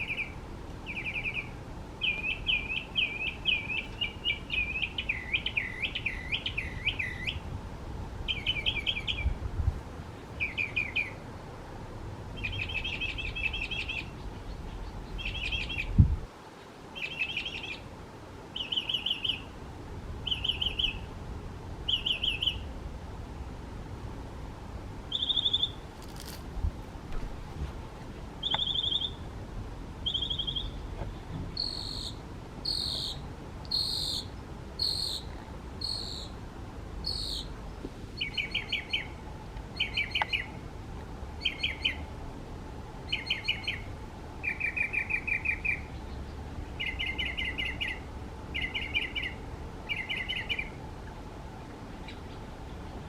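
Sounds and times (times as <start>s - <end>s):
mockingbird singing: 0.0s - 7.4s, 8.3s - 9.4s, 10.4s - 11.2s, 12.4s - 16.0s, 17.0s - 17.8s, 18.6s - 19.5s, 20.2s - 21.1s, 21.9s - 22.6s, 25.1s - 25.8s, 28.4s - 29.2s, 30.0s - 30.8s, 31.6s - 36.4s, 37.0s - 37.5s, 38.2s - 39.2s, 39.8s - 40.5s, 41.4s - 42.0s, 43.1s - 46.2s, 46.8s - 48.0s, 48.6s - 50.7s.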